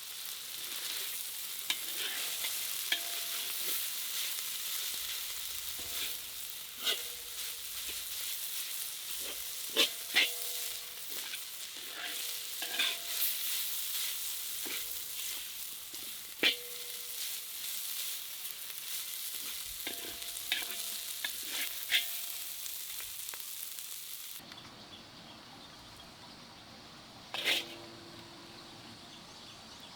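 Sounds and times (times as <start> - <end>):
food sizzling in a pan: 0.0 - 24.4
metal utensil clinking on pan: 1.7 - 8.2, 9.1 - 17.4, 19.3 - 22.7.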